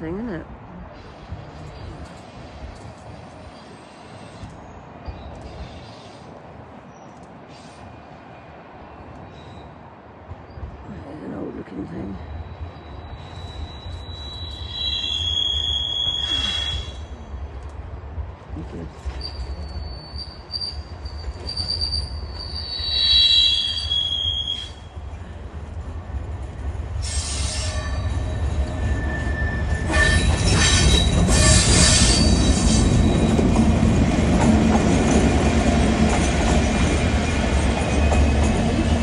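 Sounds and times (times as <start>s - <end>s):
rail noise: 0.0s - 39.0s
wheels squealing: 12.5s - 17.1s, 19.1s - 25.0s, 27.0s - 33.7s.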